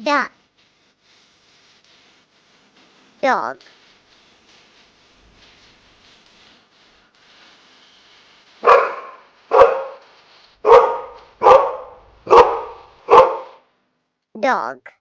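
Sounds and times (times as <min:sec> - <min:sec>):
dog barking: 0:08.6 - 0:10.0, 0:10.6 - 0:13.6.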